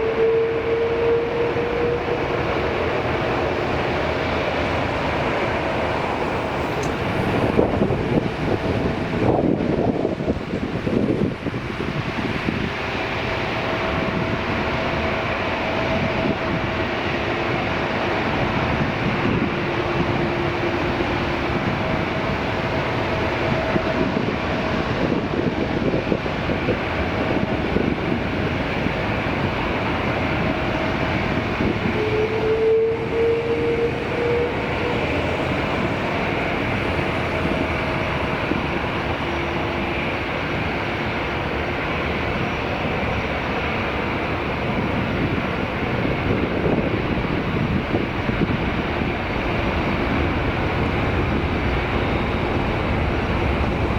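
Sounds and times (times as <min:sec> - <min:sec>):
jet engines running: 0:00.0 - 0:53.9
rising whine: 0:29.0 - 0:45.0.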